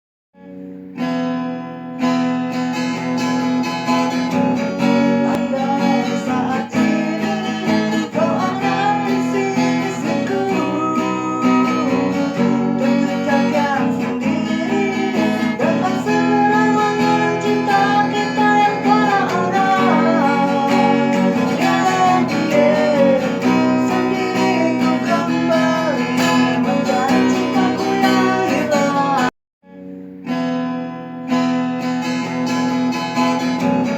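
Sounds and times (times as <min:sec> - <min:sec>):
strummed acoustic guitar: 0:00.4 - 0:33.9
person singing: 0:04.7 - 0:29.3.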